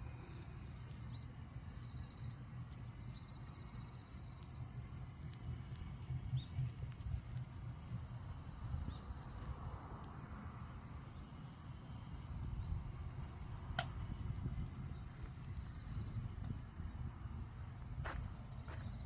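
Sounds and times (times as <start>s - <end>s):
fire crackling: 0.0s - 18.0s
firewood burning in a stove: 0.0s - 18.0s.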